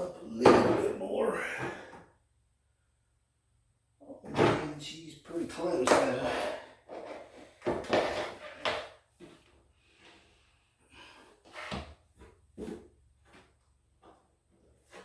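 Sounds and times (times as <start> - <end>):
wooden knocks and scrapes: 6.9 - 9.5.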